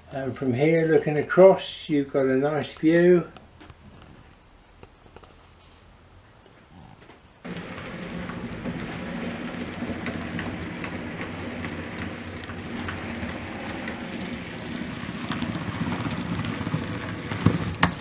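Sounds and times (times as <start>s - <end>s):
wheels clicking over rail joints: 7.4s - 18.0s
model train motor hum: 7.5s - 18.0s.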